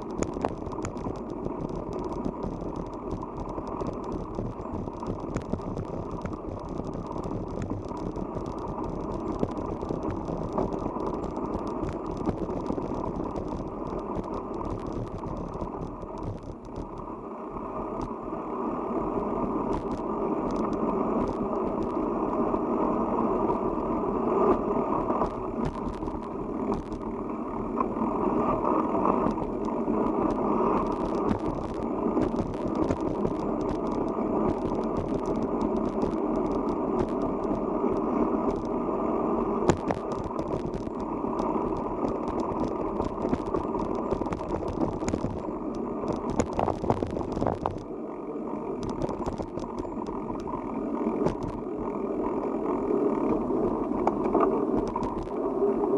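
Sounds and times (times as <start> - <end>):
clicks and rattles: 0.0 - 17.1, 19.7 - 22.0, 25.2 - 27.1, 29.1 - 38.8, 39.6 - 47.9, 48.8 - 51.6, 53.8 - 55.4
bicycle tyres rushing: 0.0 - 55.9.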